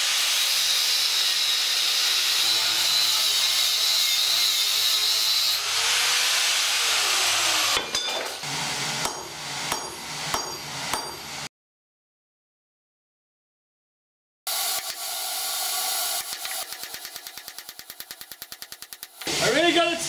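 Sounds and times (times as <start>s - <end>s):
power grinder whining on steel: 0.0s - 9.7s.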